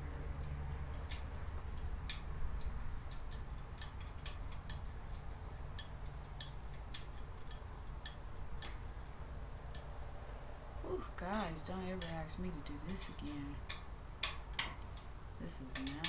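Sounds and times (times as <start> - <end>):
low steady hum: 0.0 - 16.0
small clicks and taps of parts: 0.2 - 9.1, 9.7 - 10.2, 13.1 - 15.1.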